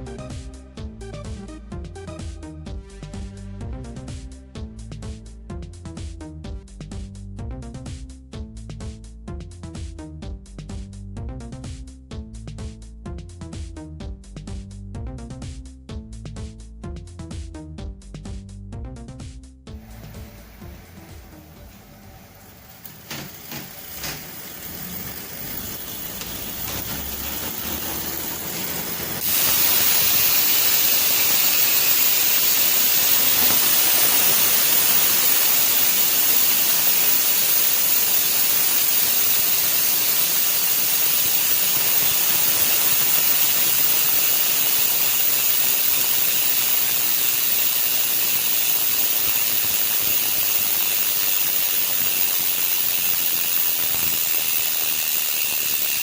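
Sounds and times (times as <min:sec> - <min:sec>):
bicycle hub buzzing: 0:19.8 - 0:56.0.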